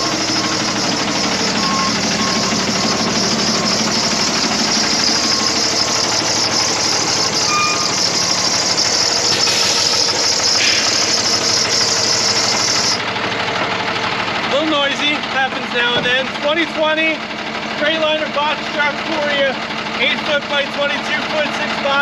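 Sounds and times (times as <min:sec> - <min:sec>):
diesel truck engine idling: 0:00.0 - 0:22.0
loud hiss: 0:07.4 - 0:12.9.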